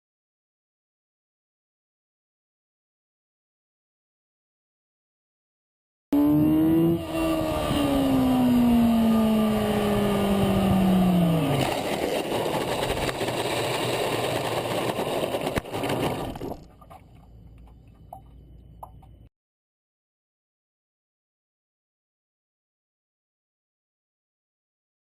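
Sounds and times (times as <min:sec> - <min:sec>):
vehicle engine running hard: 0:06.2 - 0:15.6
faint rumble: 0:06.9 - 0:19.3.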